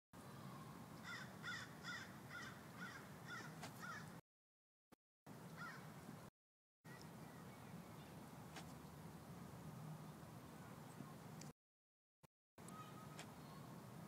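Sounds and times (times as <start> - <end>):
distant bird calling: 1.0 - 4.2, 5.4 - 6.0.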